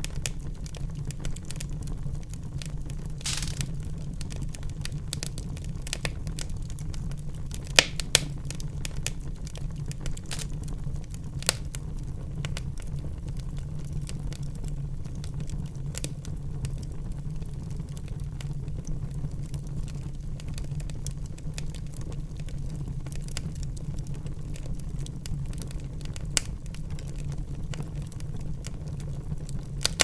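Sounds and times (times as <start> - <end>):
wood fire crackling: 0.0 - 30.0
sharp pops of fire: 3.2 - 6.5, 7.5 - 10.7, 29.8 - 30.0.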